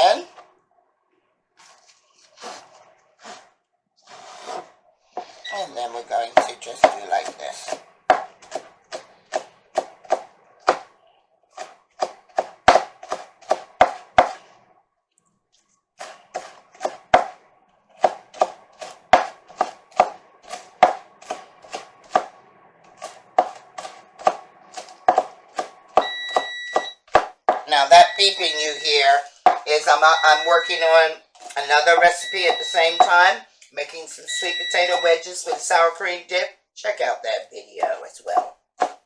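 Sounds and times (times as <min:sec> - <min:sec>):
knife chopping on a board: 0:06.4 - 0:10.9, 0:11.6 - 0:14.4, 0:16.0 - 0:17.4, 0:18.0 - 0:22.3, 0:23.0 - 0:27.7, 0:29.3 - 0:29.6, 0:38.4 - 0:39.0.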